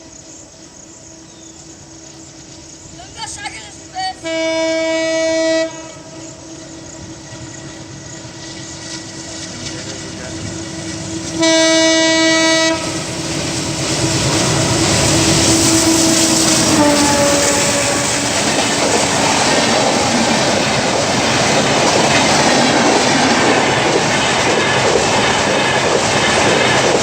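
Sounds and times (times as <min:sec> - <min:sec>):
train running noise: 0:00.0 - 0:27.0
locomotive horn blasts: 0:04.1 - 0:07.1, 0:11.1 - 0:13.2, 0:14.6 - 0:19.0.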